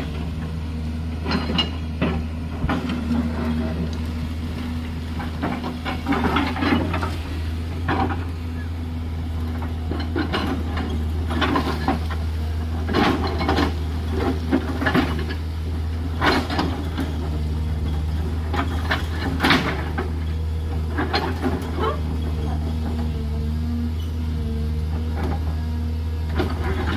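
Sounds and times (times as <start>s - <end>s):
excavator diesel engine running: 0.0s - 26.9s
bucket scraping soil and stones: 1.6s - 8.4s.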